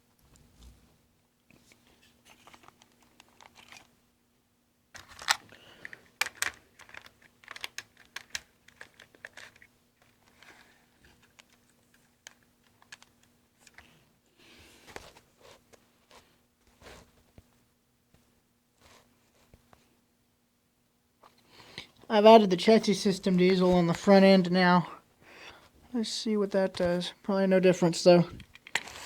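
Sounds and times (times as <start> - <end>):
faint steady hum: 0.0 - 29.0
small plastic parts clicking: 2.3 - 3.9, 5.0 - 13.9, 28.4 - 29.0.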